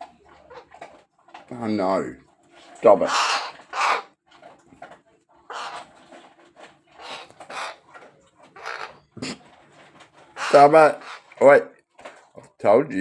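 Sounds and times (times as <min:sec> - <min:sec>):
bird harsh raspy calls: 0:03.0 - 0:04.1, 0:05.5 - 0:05.9, 0:07.0 - 0:07.9, 0:08.5 - 0:09.4, 0:10.3 - 0:11.4.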